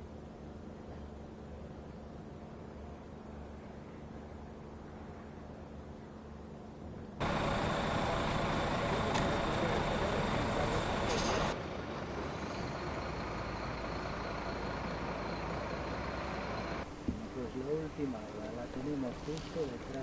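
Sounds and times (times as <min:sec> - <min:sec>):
large vehicle engine: 0:07.2 - 0:20.0.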